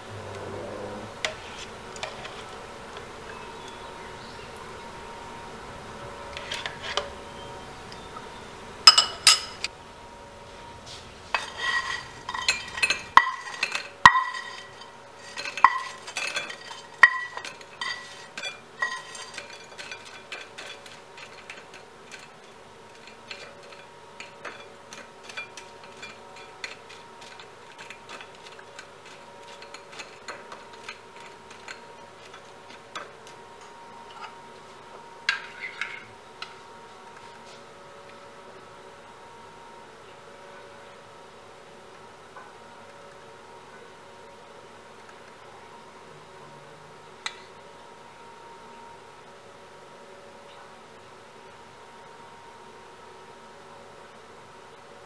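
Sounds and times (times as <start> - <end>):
dishes and cutlery clinking: 8.9 - 9.7, 11.3 - 33.4.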